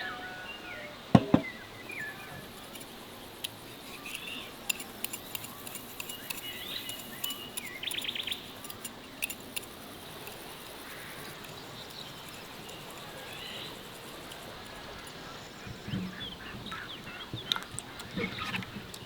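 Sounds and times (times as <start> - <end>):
small birds chirping: 1.5 - 19.0
bird trill: 1.6 - 15.6
sharp clicks: 1.9 - 15.2.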